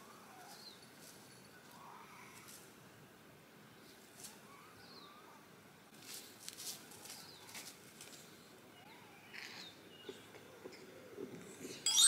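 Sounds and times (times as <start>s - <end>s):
crackling rustles: 5.9s - 8.4s.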